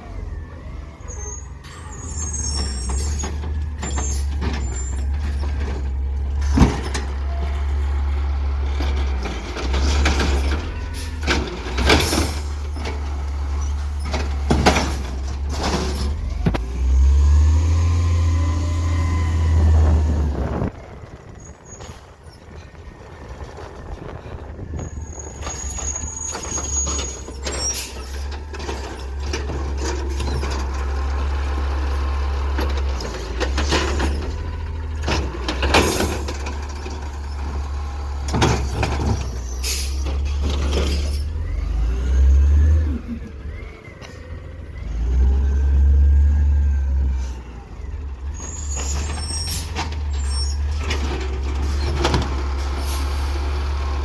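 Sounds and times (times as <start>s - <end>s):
garbage truck engine running: 0.0s - 54.0s
sharp clanks and bangs: 14.0s - 16.7s.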